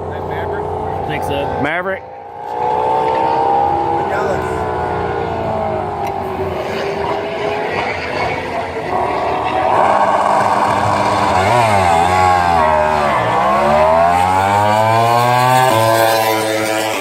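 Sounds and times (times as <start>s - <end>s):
racing motorcycle engine: 0.0s - 17.0s.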